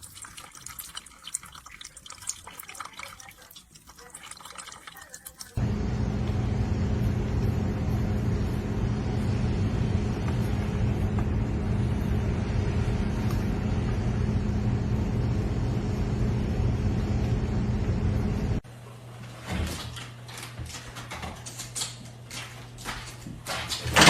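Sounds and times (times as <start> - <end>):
machine humming and rushing: 5.6 - 18.6.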